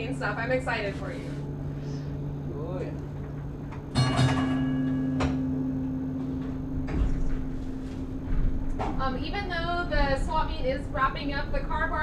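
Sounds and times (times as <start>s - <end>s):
electric streetcar humming: 0.0s - 12.0s
metallic strike ringing: 3.9s - 9.8s.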